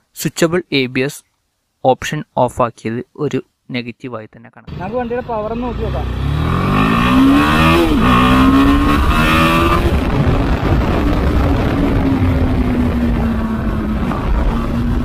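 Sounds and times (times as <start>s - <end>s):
motorcycle engine accelerating: 4.7s - 15.0s
wind rushing over microphone: 6.0s - 15.0s.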